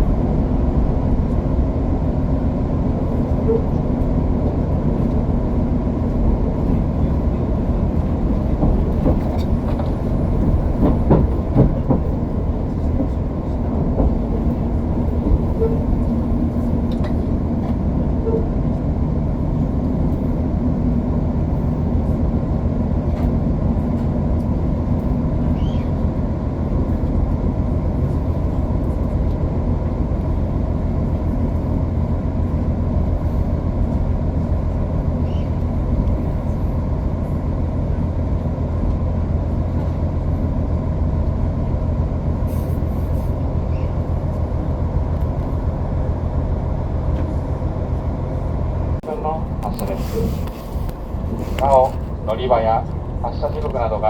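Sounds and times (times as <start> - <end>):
train wheels and engines rumbling: 0.0 - 54.0
rail-joint clicks: 3.2 - 18.8, 49.4 - 54.0.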